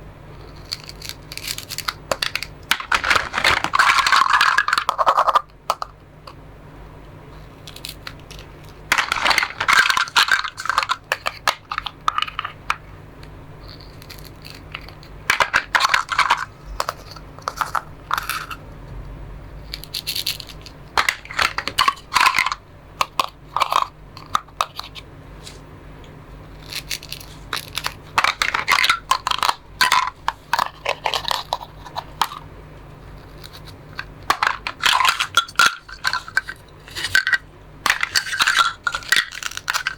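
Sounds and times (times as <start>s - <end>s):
plastic toy food being cut: 0.5s - 5.5s, 13.8s - 18.6s, 26.6s - 32.4s, 37.9s - 39.9s.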